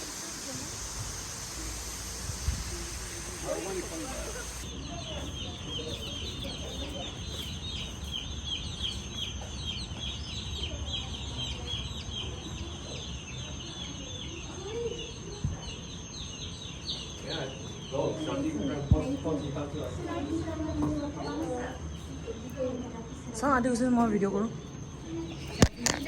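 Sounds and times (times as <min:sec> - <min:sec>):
thin high whine: 0:00.0 - 0:04.7
faint voices: 0:00.0 - 0:07.6
flock of birds chirping: 0:00.0 - 0:23.4.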